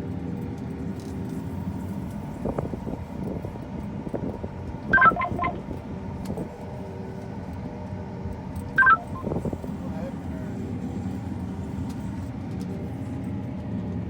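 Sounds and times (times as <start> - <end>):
low engine hum: 0.0 - 14.0
short electronic beeps: 4.9 - 5.8, 8.8 - 9.5.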